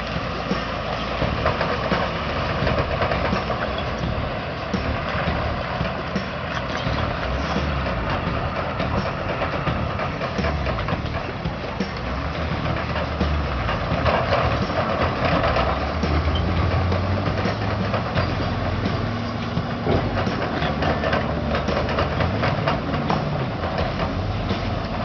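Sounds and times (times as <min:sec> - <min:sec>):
diesel engine running: 0:00.0 - 0:25.0
metallic clanks and rattles: 0:00.1 - 0:25.0.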